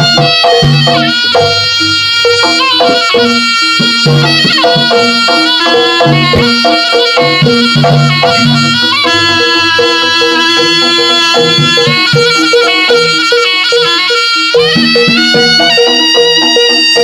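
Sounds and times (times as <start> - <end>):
gong-chime notes: 0.0 - 13.4
drums: 0.0 - 14.0
reedy wind instrument melody: 0.0 - 17.0.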